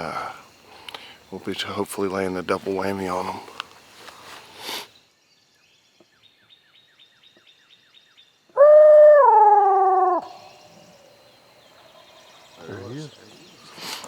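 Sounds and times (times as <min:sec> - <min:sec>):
faint high bird chirps: 0:04.9 - 0:13.9.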